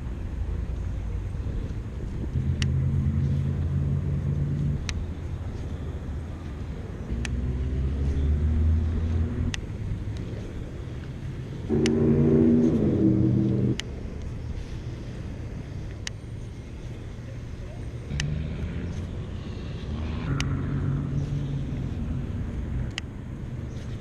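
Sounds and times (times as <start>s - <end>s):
faint sharp clicks: 7.2s - 7.4s, 18.1s - 19.1s, 20.3s - 20.6s, 22.8s - 23.1s.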